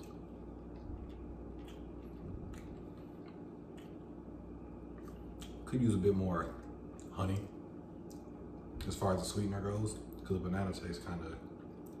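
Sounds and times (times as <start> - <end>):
people chewing with mouth clicks: 0.0 - 5.6
low room hum: 0.0 - 12.0.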